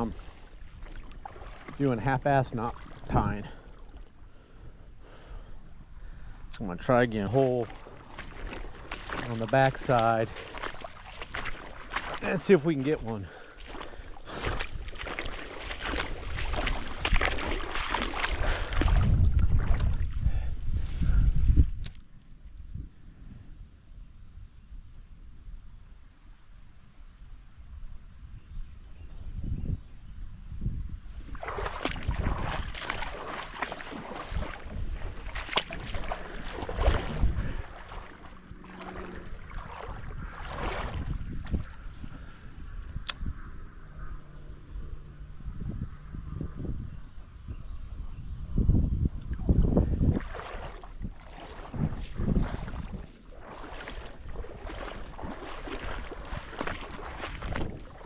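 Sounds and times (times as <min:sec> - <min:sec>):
river water splashing: 0:00.0 - 0:20.2, 0:31.1 - 0:45.6, 0:49.2 - 0:58.0
wind rumbling on microphone: 0:00.0 - 0:58.0.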